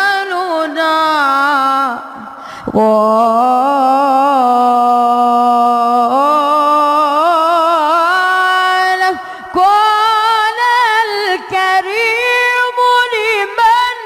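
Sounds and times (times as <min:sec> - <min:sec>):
quick breath: 0:02.2 - 0:02.8, 0:09.2 - 0:09.6.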